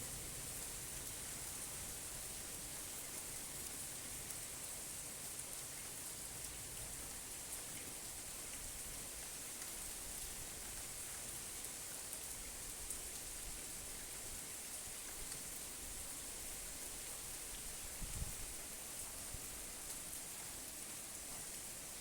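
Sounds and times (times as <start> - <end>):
steady rain hiss: 0.0 - 22.0.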